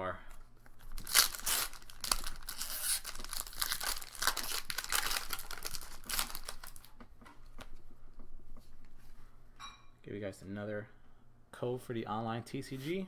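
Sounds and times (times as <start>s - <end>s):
foil wrapper crinkling: 0.3s - 7.8s.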